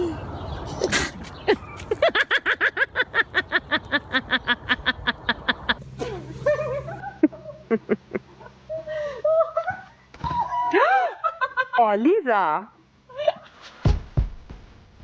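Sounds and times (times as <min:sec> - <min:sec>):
person laughing: 0:00.7 - 0:09.9
low steady hum: 0:02.8 - 0:13.3.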